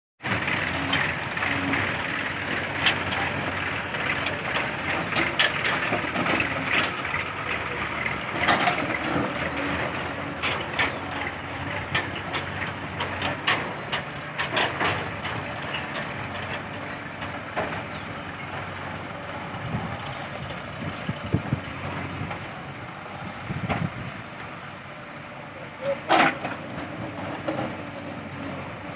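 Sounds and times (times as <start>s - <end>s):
diesel engine running: 0.2s - 28.9s
sharp metal clanks and knocks: 8.4s - 18.2s.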